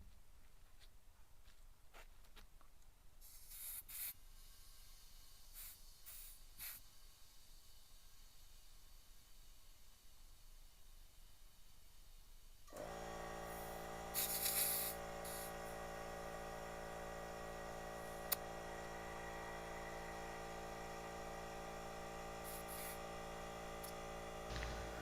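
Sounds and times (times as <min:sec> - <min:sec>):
air compressor running: 0:12.7 - 0:25.0
air hissing through chuck: 0:14.2 - 0:15.6.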